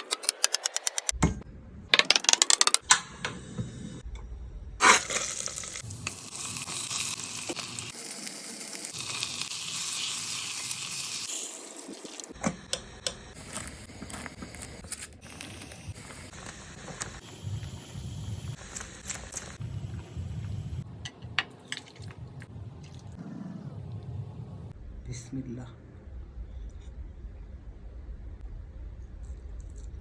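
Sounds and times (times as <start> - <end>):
food sizzling in hot oil: 4.8 - 20.8.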